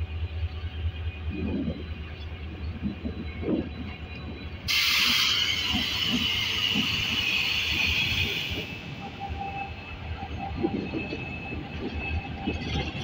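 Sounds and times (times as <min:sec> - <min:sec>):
loud hiss of escaping air: 0:04.7 - 0:08.6.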